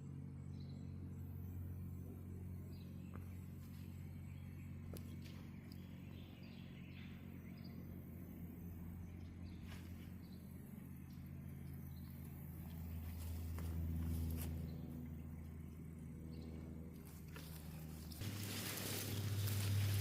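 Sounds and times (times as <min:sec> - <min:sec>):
bird chirps: 0:00.0 - 0:13.2
steady low hum: 0:00.0 - 0:20.0.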